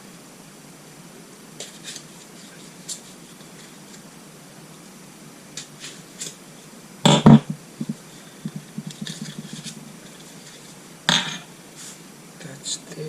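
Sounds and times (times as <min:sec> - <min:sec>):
metal parts knocking on workbench: 0:07.1 - 0:07.5, 0:11.1 - 0:11.5.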